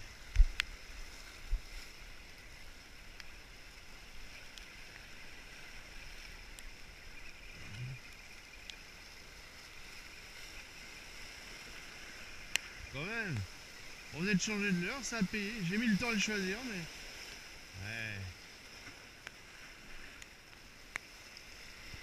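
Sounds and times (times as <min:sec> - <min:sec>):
faint clicks: 0:03.0 - 0:03.4, 0:04.3 - 0:05.2, 0:06.2 - 0:09.2, 0:12.4 - 0:13.5, 0:20.1 - 0:21.5
sea surf washing over rocks: 0:09.4 - 0:22.0.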